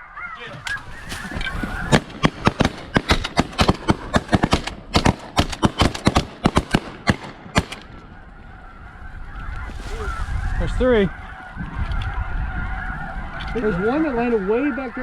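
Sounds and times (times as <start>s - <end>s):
geese honking: 0.0s - 4.6s, 7.2s - 15.0s
shotgun blasts: 1.0s - 8.0s.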